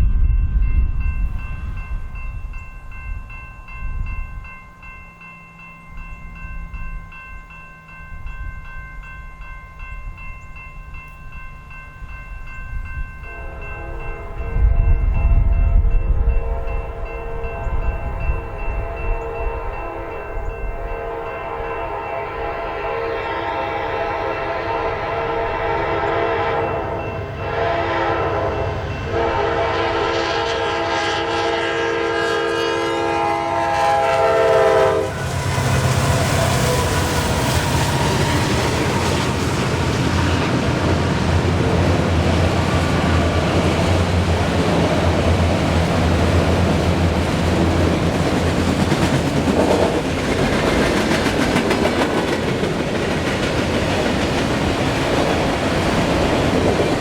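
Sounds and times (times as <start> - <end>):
train air horn blasts: 13.3 - 15.2, 16.2 - 39.4
wheels clicking over rail joints: 37.2 - 57.0.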